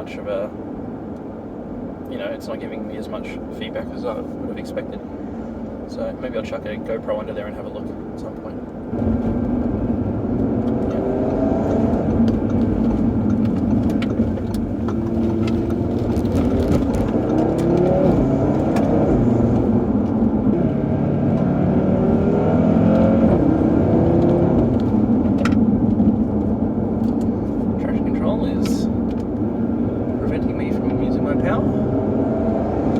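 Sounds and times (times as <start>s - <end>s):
road noise rumble: 0.0s - 32.9s
car engine accelerating through gears: 8.8s - 32.9s.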